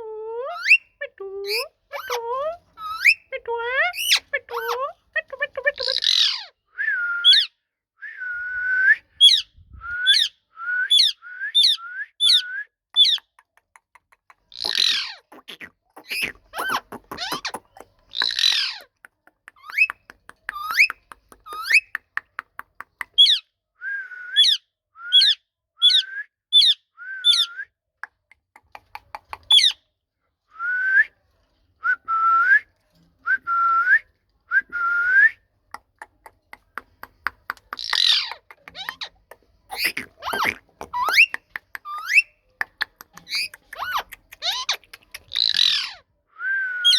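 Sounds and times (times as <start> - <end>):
parrot harsh squawks: 5.8 - 6.5, 14.6 - 18.9, 37.8 - 39.1, 39.7 - 41.3, 43.3 - 46.0
parrot clicking chatter: 13.0 - 23.3, 28.4 - 29.8, 35.8 - 45.9.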